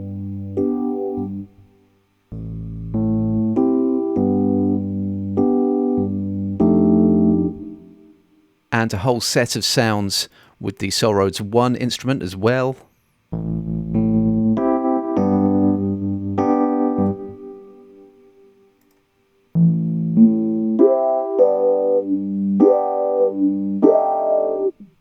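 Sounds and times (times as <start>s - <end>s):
electric piano playing chords: 0.0s - 8.4s, 13.3s - 25.0s.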